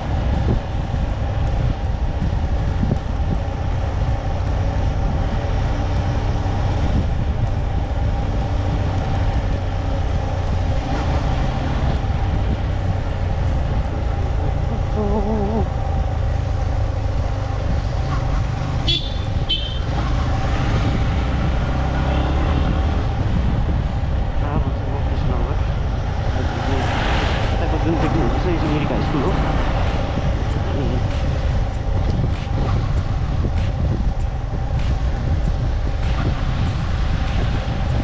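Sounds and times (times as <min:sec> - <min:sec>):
motorcycle engine rumble: 0:00.0 - 0:38.0
wind on microphone: 0:17.0 - 0:38.0.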